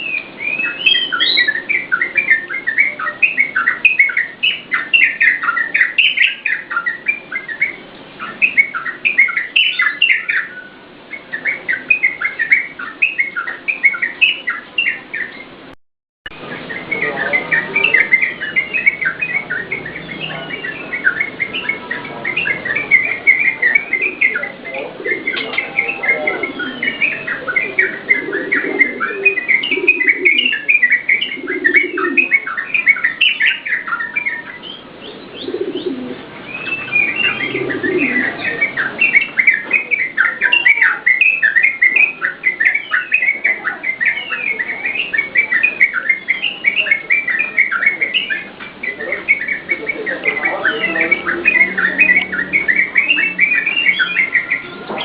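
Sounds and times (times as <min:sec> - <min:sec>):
bird singing sliding notes: 0:00.0 - 0:55.0
lower bird notes: 0:00.0 - 0:55.0.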